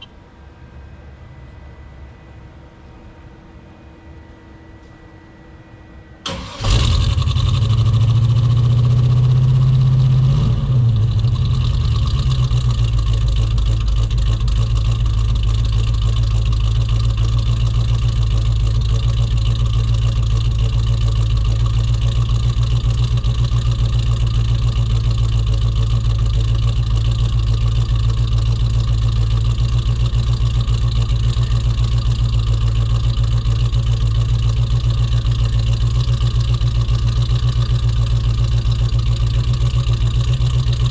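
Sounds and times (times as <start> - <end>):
engine idling rough: 6.3 - 40.9.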